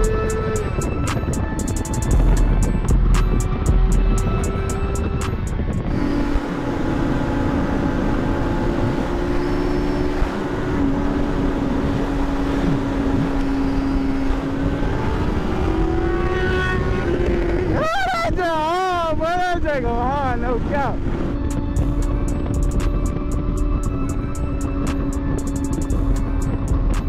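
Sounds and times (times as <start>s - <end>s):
motorcycle engine cruising: 0.0s - 27.0s
rush of riding noise: 0.0s - 27.0s.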